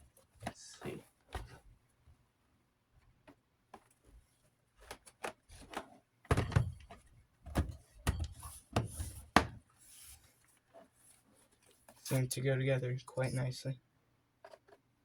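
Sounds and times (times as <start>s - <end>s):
plastic parts knocking and clicking: 4.8s - 9.6s.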